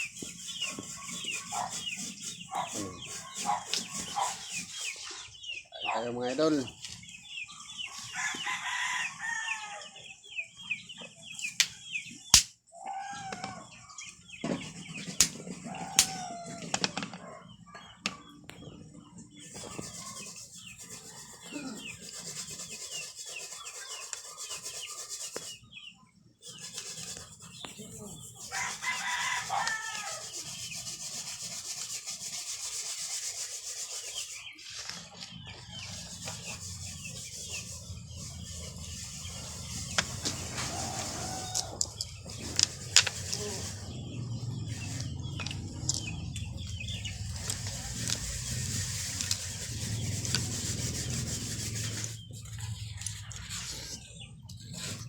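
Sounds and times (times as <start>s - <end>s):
rooster crowing: 8.1s - 10.0s, 28.5s - 30.3s, 40.0s - 42.7s.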